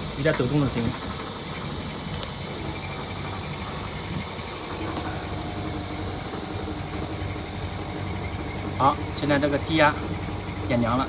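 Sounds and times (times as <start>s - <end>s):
compressor hum: 0.0s - 11.0s
condenser fan noise: 0.0s - 11.0s
casing vibrating: 2.8s - 11.0s.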